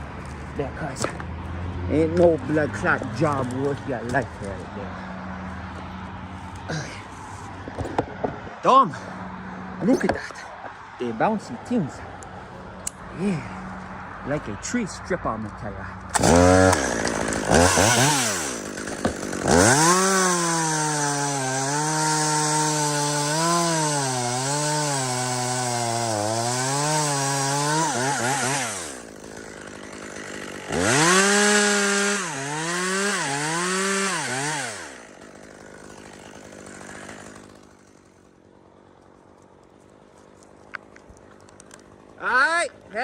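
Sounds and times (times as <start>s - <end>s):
chainsaw cutting wood: 0.0s - 6.8s, 16.0s - 42.3s.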